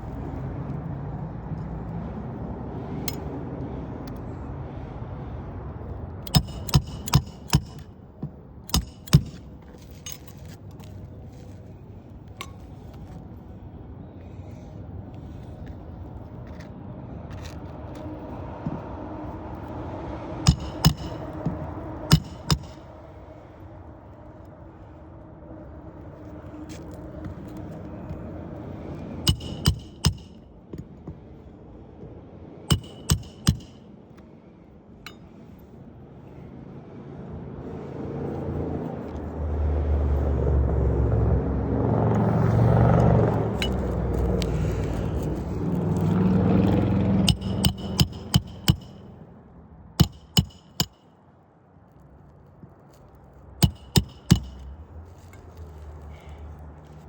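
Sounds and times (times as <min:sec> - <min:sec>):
passing vehicle rumble: 0:00.0 - 0:50.8
hammer driving nails into shingles: 0:06.2 - 0:07.9, 0:08.7 - 0:09.5, 0:20.5 - 0:22.9, 0:29.3 - 0:30.4, 0:32.7 - 0:33.8, 0:47.2 - 0:49.0, 0:50.0 - 0:51.0, 0:53.6 - 0:54.7.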